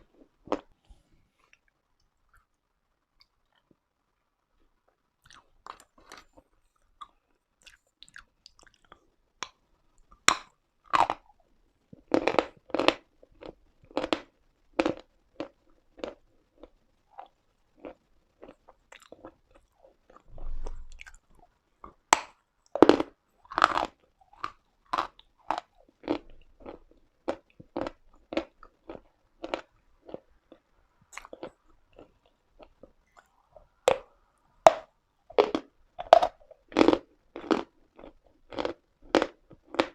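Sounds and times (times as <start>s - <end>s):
chalk crunching while chewed: 22.8s - 34.1s, 34.7s - 39.9s.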